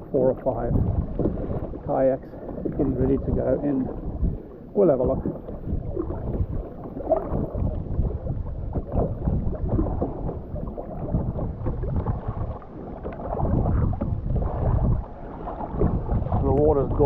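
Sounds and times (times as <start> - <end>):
water splashing against kayak: 0.0 - 17.0
wind on microphone: 0.0 - 17.0.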